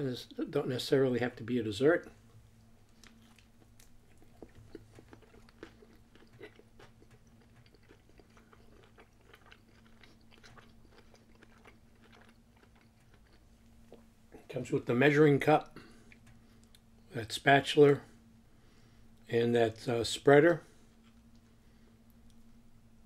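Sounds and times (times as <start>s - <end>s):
low steady hum: 0.0s - 23.0s
chewing soft food: 2.0s - 14.5s, 20.7s - 22.6s.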